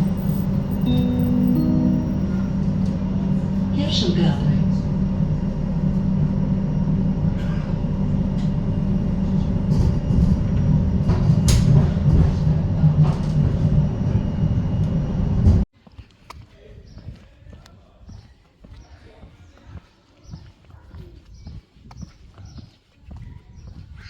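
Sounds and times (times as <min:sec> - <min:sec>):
train rumbling with clicks: 0:00.0 - 0:15.7.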